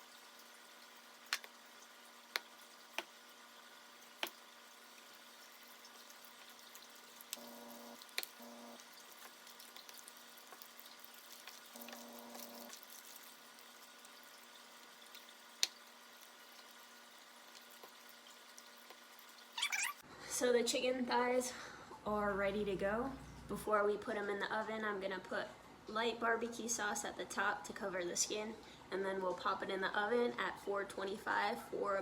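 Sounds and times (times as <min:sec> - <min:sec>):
faint electrical hum: 0:00.0 - 0:32.0.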